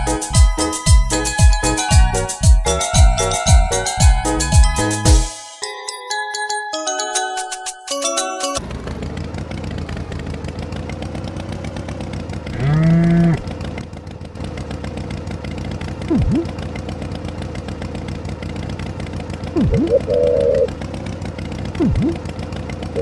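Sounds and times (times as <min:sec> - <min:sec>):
tractor engine running: 0:00.0 - 0:05.3, 0:08.0 - 0:23.0
cow mooing: 0:12.5 - 0:13.5
swooping pitch glides: 0:16.1 - 0:16.6, 0:19.6 - 0:20.8, 0:21.8 - 0:22.2.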